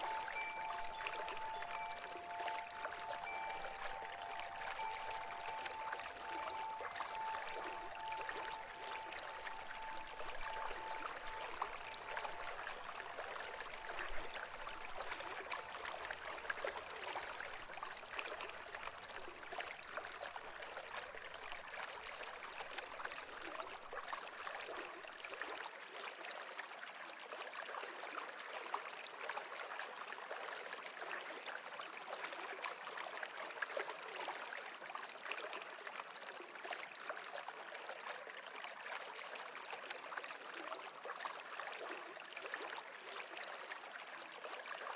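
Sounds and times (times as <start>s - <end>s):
stream babbling: 0.0s - 25.4s.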